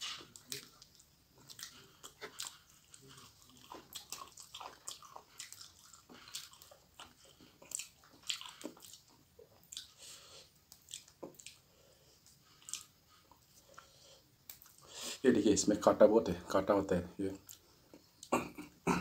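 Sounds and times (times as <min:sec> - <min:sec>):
crunching and chewing: 0:00.0 - 0:14.9.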